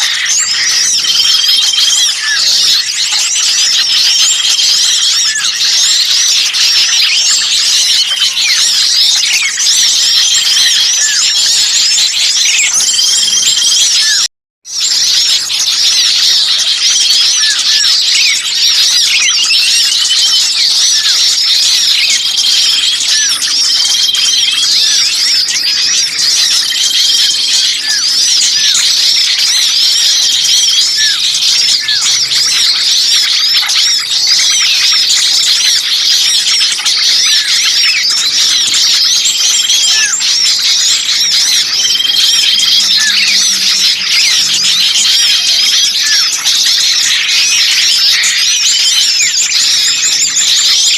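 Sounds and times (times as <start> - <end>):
songbirds chirping: 0.0 - 50.9.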